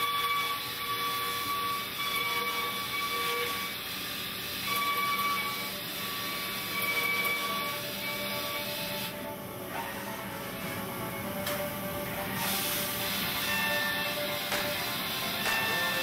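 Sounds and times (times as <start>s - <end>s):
milling machine cutting metal: 0.0s - 16.0s
high ringing tone: 4.6s - 8.6s, 13.4s - 14.2s, 15.3s - 16.0s.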